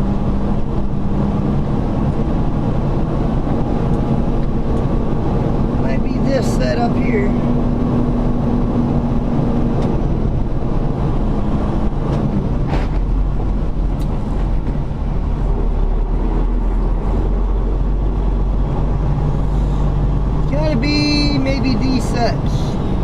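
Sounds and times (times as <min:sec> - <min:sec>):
diesel truck engine rumbling: 0:00.0 - 0:23.0.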